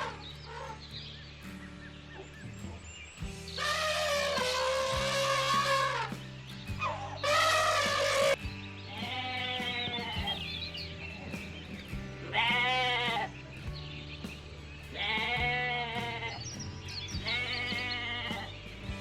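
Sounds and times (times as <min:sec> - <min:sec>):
sheep or goat bleating: 0:00.0 - 0:00.8, 0:03.6 - 0:06.1, 0:06.8 - 0:10.4, 0:12.2 - 0:13.3, 0:14.9 - 0:16.6, 0:17.2 - 0:18.6
background music with bass: 0:00.0 - 0:19.0.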